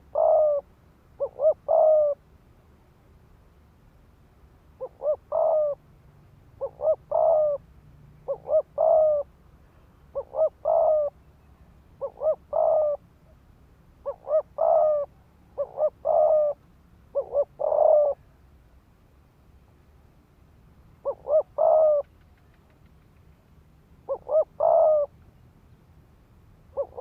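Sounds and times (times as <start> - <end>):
dove cooing: 0.0 - 2.2, 4.8 - 5.8, 6.6 - 7.6, 8.2 - 9.3, 10.1 - 11.2, 12.0 - 13.0, 14.0 - 18.3, 21.0 - 22.8, 24.1 - 25.1, 26.7 - 27.0.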